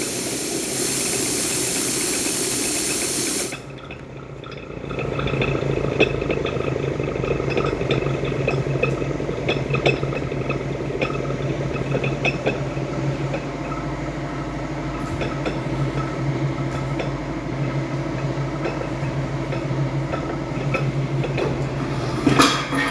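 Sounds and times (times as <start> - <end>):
gas meter humming and clicking: 0.0 - 13.8.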